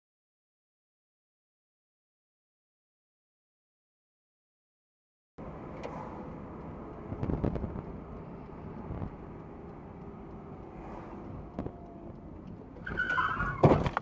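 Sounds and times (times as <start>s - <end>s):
vehicle road rumble: 5.4s - 14.0s
brief high squeal: 12.8s - 13.8s.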